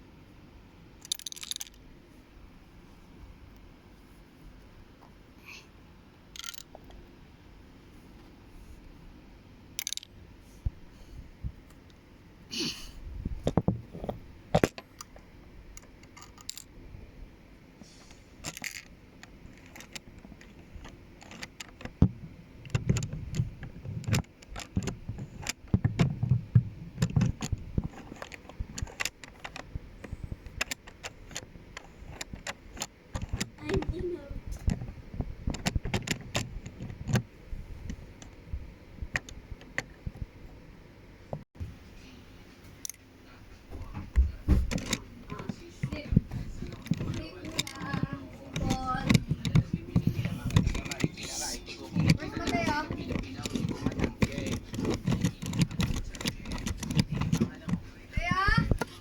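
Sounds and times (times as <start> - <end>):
plastic bricks clicking and rattling: 1.0 - 1.8, 6.3 - 6.9, 9.8 - 10.2, 15.8 - 16.7, 18.4 - 29.8, 44.7 - 59.0.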